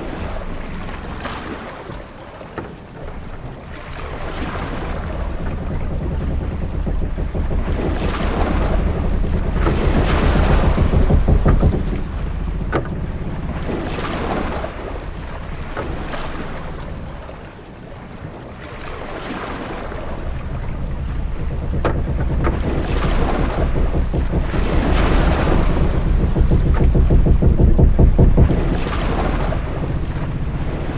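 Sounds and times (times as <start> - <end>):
waves washing against hull: 0.0 - 30.9
deep low rumble: 3.8 - 17.5, 19.7 - 30.9.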